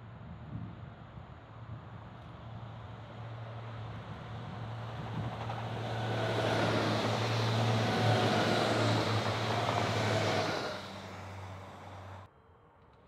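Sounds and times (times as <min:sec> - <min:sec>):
train rushing past: 0:03.0 - 0:12.3.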